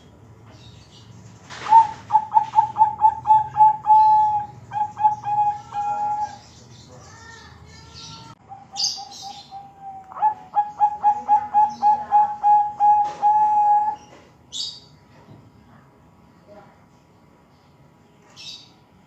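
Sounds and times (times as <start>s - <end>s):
small bird chirping: 0.5s - 13.0s
dove cooing: 1.6s - 6.4s, 8.4s - 14.1s.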